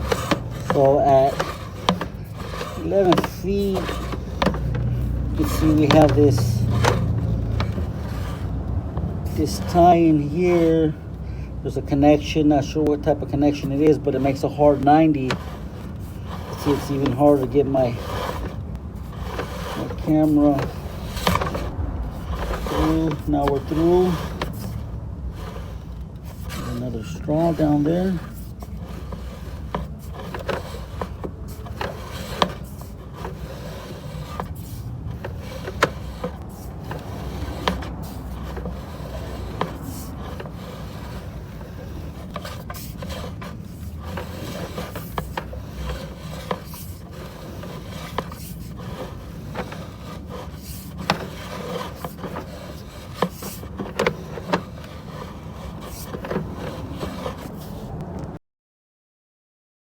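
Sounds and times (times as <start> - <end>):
cable scraping inside pipe: 0.0 - 58.4
steady low hum: 14.5 - 53.1.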